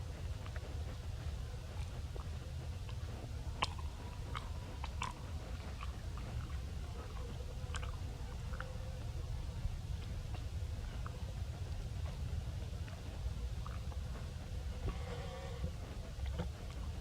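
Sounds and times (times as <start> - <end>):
steady low rumble: 0.0 - 17.0
small clicks and mouth smacks: 3.6 - 6.6, 7.7 - 8.7.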